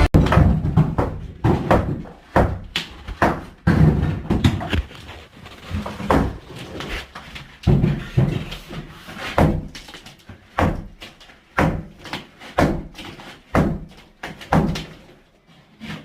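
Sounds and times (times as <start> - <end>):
sledgehammer striking wall: 0.0 - 4.7, 9.2 - 14.9.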